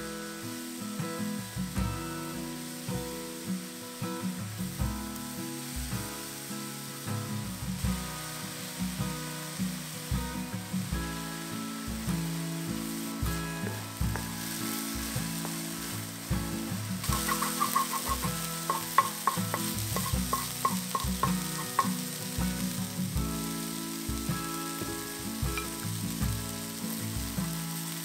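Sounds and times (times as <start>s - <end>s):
food sizzling in a wok: 0.0s - 28.0s
soft background music: 0.0s - 28.0s
wooden spatula scraping: 12.8s - 22.1s.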